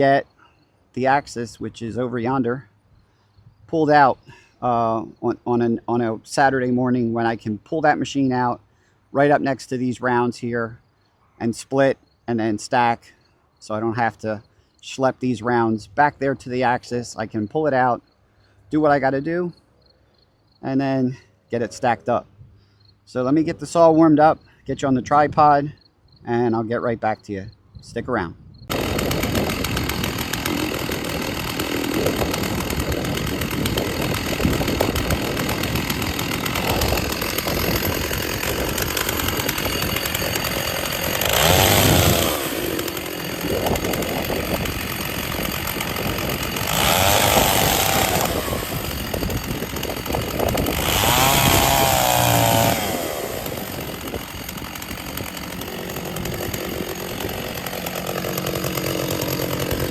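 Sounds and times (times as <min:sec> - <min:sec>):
chainsaw running: 0:28.7 - 0:59.9
chainsaw throttle revving: 0:28.7 - 0:59.9.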